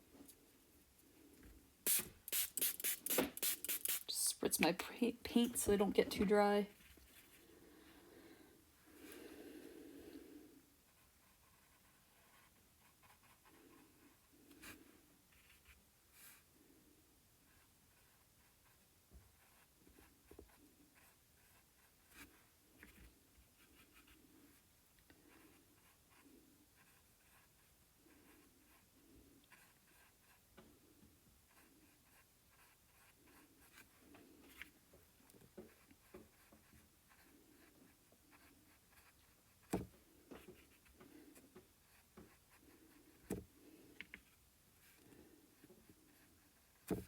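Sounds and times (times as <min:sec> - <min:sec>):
paintbrush strokes: 0:01.8 - 0:04.3.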